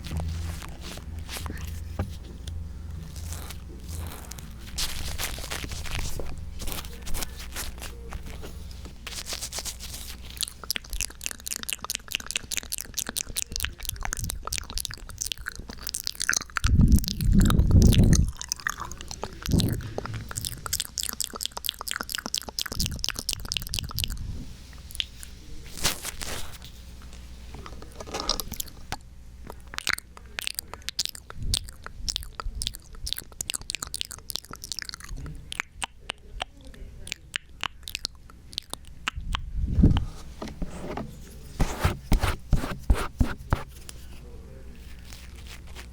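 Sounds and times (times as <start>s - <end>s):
handling rumble against microphone: 0.0s - 10.2s, 19.0s - 20.9s, 39.6s - 45.9s
moist crunching: 0.0s - 24.2s, 24.9s - 35.6s.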